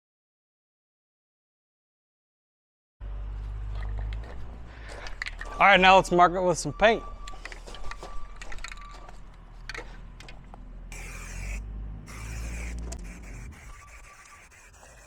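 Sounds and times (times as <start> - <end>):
aerosol paint spraying: 10.9 - 15.0.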